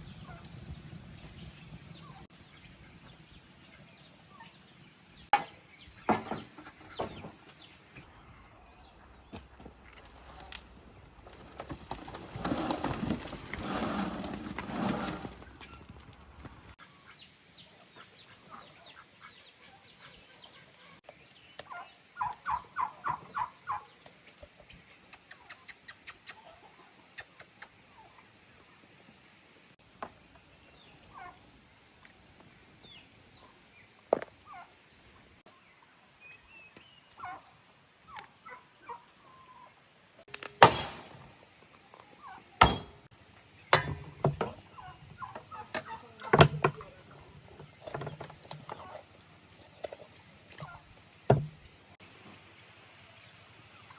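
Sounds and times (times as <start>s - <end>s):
turkey gobbling: 21.7s - 23.9s, 31.1s - 31.4s, 37.2s - 37.5s, 38.1s - 39.7s, 44.6s - 46.3s
sharp knocks: 42.6s - 43.1s, 43.7s - 44.6s.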